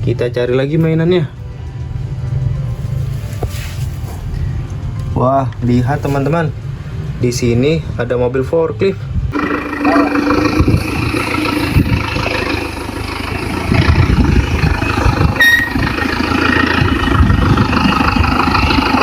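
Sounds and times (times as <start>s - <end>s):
vehicle engine rumbling: 0.0s - 19.0s
short high beep: 15.4s - 15.8s.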